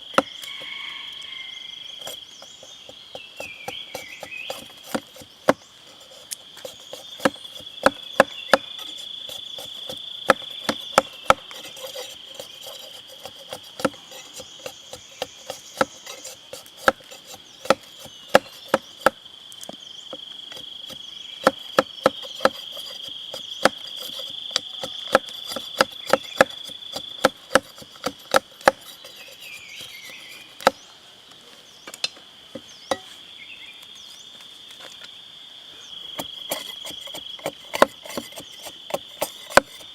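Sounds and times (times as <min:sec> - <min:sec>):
high-pitched insect chorus: 0:00.0 - 0:39.9
sharp knocks of chopping wood: 0:07.2 - 0:08.9, 0:09.9 - 0:11.5, 0:17.6 - 0:19.2, 0:20.9 - 0:23.0, 0:23.6 - 0:28.8.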